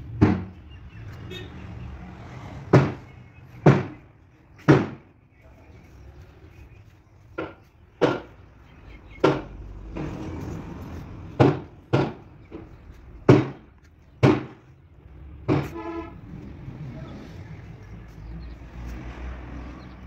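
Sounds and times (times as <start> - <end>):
sharp knocks: 0.1 - 0.6, 2.7 - 4.0, 4.6 - 5.1, 7.4 - 8.4, 9.2 - 10.2, 11.4 - 14.6, 15.4 - 15.8.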